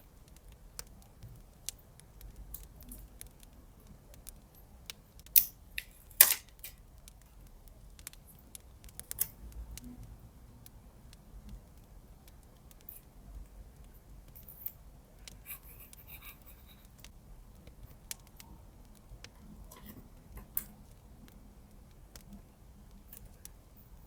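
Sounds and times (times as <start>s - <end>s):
small clicks and handling sounds: 0.2s - 9.4s, 11.5s - 18.5s.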